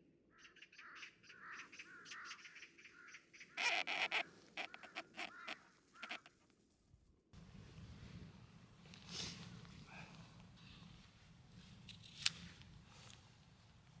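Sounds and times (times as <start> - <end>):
bird calling: 0.4 - 6.4.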